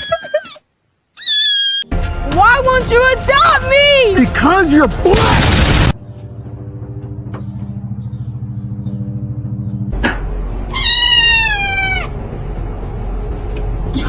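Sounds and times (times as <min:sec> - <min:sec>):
sudden noise: 0:05.1 - 0:06.0
cat meowing: 0:10.7 - 0:12.1.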